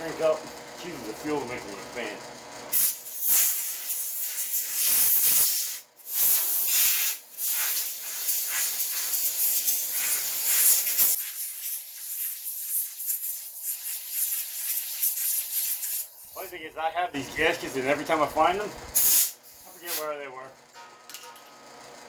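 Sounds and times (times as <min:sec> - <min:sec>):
air blow gun hissing: 0:02.7 - 0:16.6, 0:17.2 - 0:20.2.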